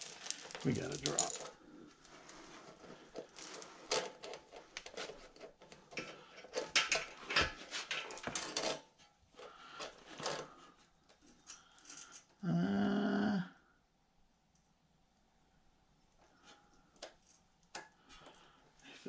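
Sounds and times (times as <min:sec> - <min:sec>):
metal chain rattling: 0:00.0 - 0:01.8.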